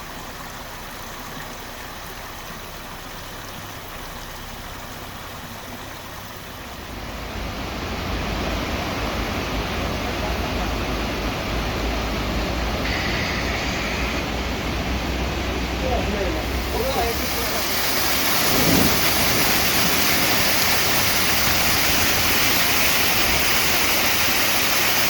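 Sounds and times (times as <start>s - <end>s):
steady rushing noise: 6.6s - 25.0s
deep low rumble: 6.9s - 24.1s
bright hiss: 12.7s - 25.0s.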